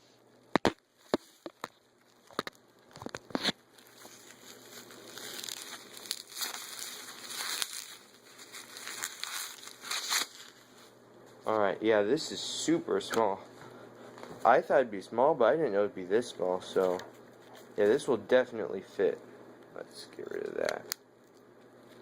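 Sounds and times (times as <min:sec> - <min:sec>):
packaging being handled: 0:00.6 - 0:11.0.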